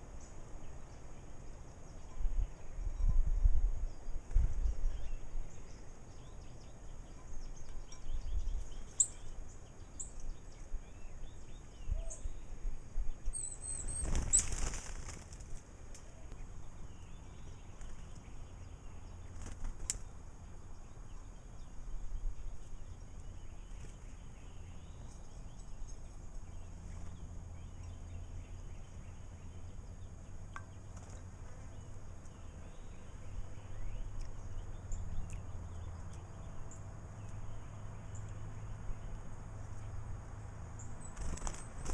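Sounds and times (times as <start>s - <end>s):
high bird chirps: 6.2s - 12.4s, 13.2s - 14.7s
bird wings flapping: 13.8s - 15.6s, 19.3s - 20.0s, 41.1s - 41.9s.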